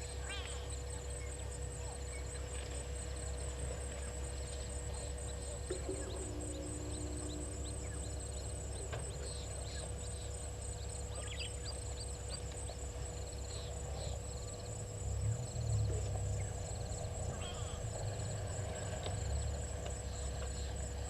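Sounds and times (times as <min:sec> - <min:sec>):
high-pitched insect trill: 0:00.0 - 0:21.0
low rumble: 0:04.3 - 0:20.9
bird chirps and trills: 0:04.8 - 0:14.7, 0:15.8 - 0:18.1.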